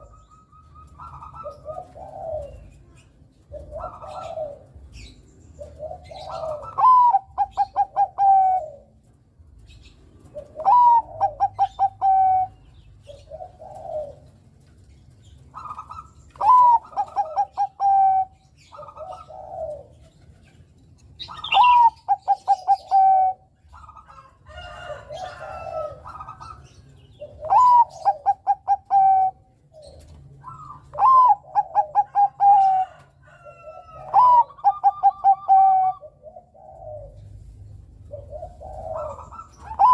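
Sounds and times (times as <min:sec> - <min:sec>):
soft low dove coos: 0:00.0 - 0:04.9, 0:10.2 - 0:14.4, 0:16.4 - 0:20.3, 0:25.0 - 0:39.9
dove cooing song: 0:00.0 - 0:39.9.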